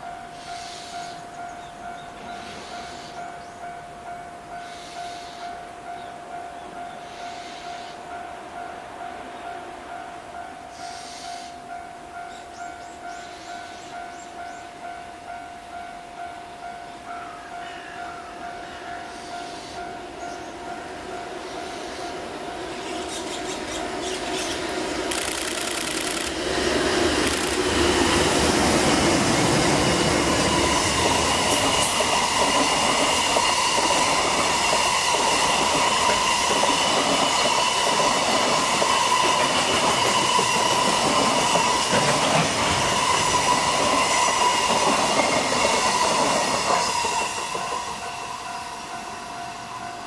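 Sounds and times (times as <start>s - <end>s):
train wagons rolling and clattering: 23.1s - 48.4s.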